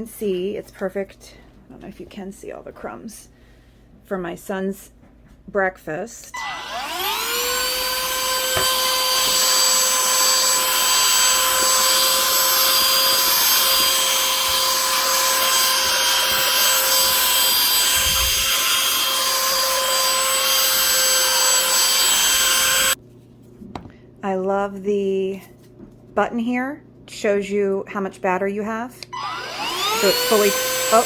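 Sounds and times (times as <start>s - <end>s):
handheld vacuum whining: 6.4s - 23.0s, 29.1s - 31.0s.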